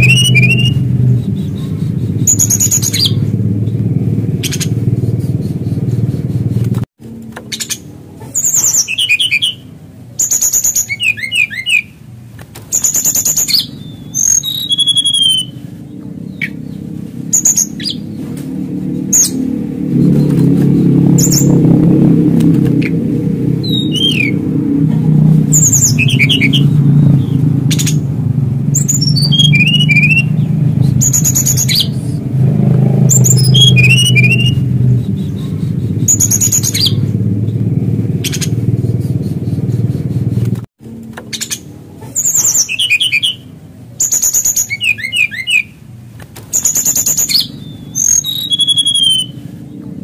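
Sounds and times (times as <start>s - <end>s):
bird singing whistled phrases: 0.0s - 3.3s, 8.4s - 12.0s, 12.7s - 15.7s, 23.6s - 24.4s, 25.5s - 28.0s, 28.8s - 32.2s, 33.1s - 37.0s, 41.3s - 45.8s, 46.5s - 49.4s
loud low rumble: 0.0s - 7.3s, 13.6s - 41.1s.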